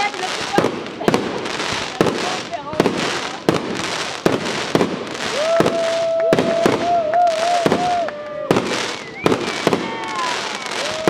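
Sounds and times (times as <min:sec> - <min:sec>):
fireworks bangs: 0:00.0 - 0:11.0
fireworks crackling: 0:00.0 - 0:11.0
wavering whistle: 0:06.3 - 0:11.0.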